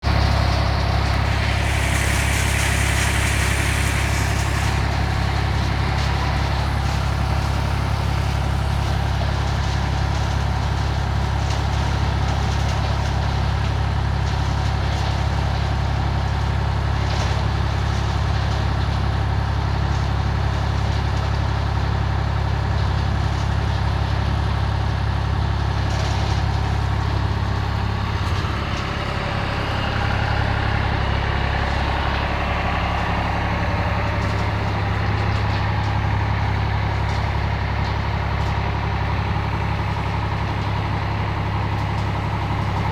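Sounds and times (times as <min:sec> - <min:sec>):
tractor engine running: 0:00.0 - 0:42.9
high hiss: 0:01.0 - 0:07.6.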